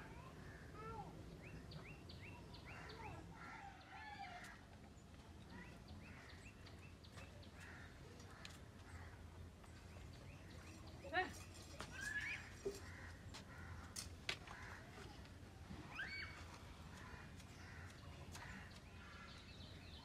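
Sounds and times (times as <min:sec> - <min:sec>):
faint bird chirps: 0:15.9 - 0:16.5.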